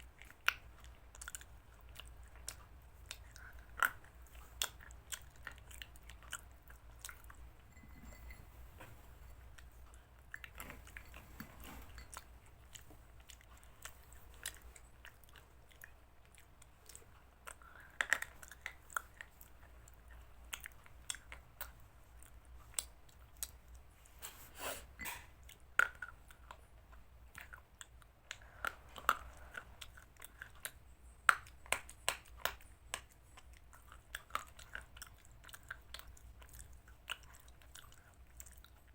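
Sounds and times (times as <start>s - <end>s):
person chewing with crunches: 0.0s - 38.9s.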